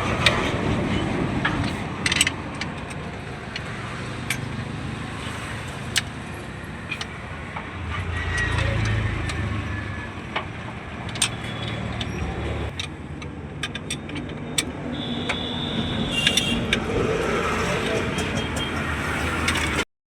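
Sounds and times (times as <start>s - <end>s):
metallic clicks and taps of tools: 1.6s - 4.6s, 5.9s - 6.2s, 6.9s - 7.7s, 11.1s - 15.4s, 16.2s - 16.6s.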